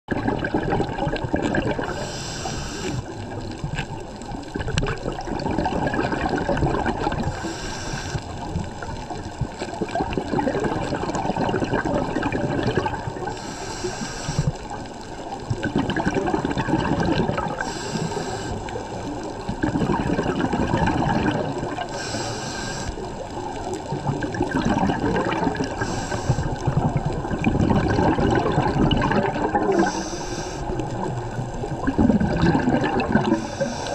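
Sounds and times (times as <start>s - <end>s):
exhaled bubbles rushing: 0.1s - 13.5s, 14.4s - 22.2s, 23.0s - 33.9s
regulator hiss: 1.9s - 3.2s, 7.3s - 8.4s, 13.3s - 14.7s, 17.6s - 18.9s, 21.9s - 23.2s, 25.7s - 26.7s, 29.7s - 31.0s, 33.3s - 33.9s.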